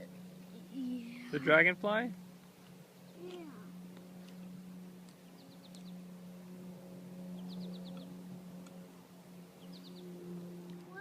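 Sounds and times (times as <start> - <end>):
steady low hum: 0.0 - 11.0
small bird calling: 3.0 - 4.5, 7.4 - 8.2, 9.6 - 10.2.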